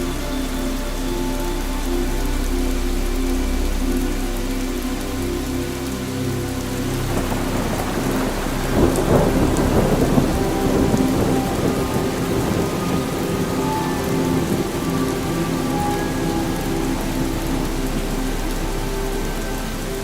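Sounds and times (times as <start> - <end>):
steady rain falling: 0.0 - 20.0
thunder rumbling: 7.0 - 20.0.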